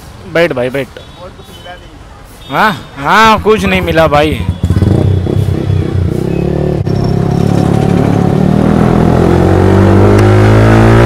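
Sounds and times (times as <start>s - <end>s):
motorcycle engine accelerating: 4.3s - 11.0s.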